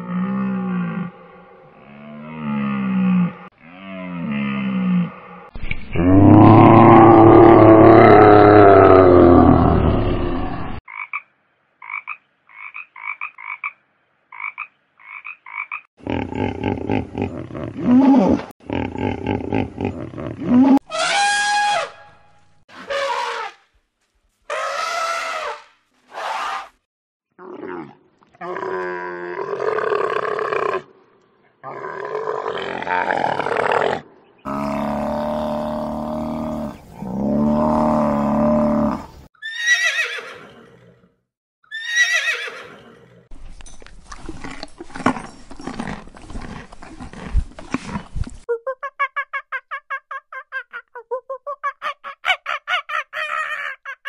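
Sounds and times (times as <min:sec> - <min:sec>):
frog croaks: 0:10.9 - 0:15.9.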